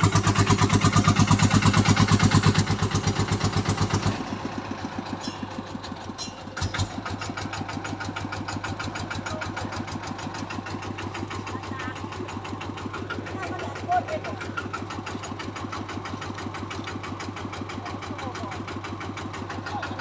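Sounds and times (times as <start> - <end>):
truck engine pulsing: 0.0 - 20.0.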